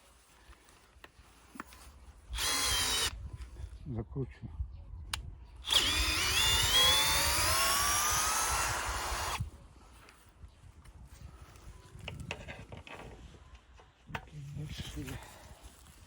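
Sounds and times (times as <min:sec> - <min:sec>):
cordless drill whine: 0:02.4 - 0:03.1, 0:05.6 - 0:09.4
faint knocks and handling: 0:11.9 - 0:14.3.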